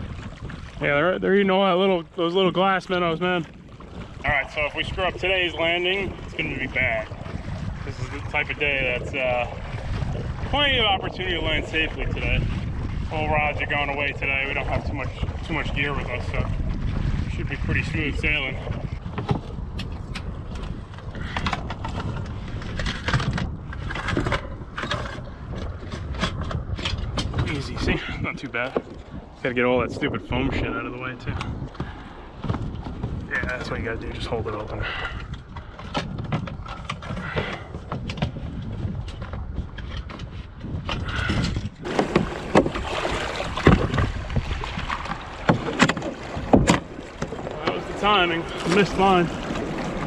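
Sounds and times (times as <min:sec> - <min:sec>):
water splashing around hull: 0:00.0 - 0:50.0
wind buffeting the microphone: 0:00.0 - 0:50.0
knocks against hull: 0:18.6 - 0:27.6, 0:31.3 - 0:33.7, 0:35.0 - 0:50.0.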